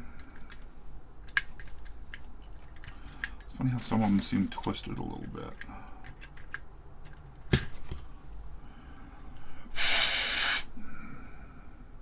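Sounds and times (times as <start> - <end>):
hiss of rushing air: 9.8 - 10.7.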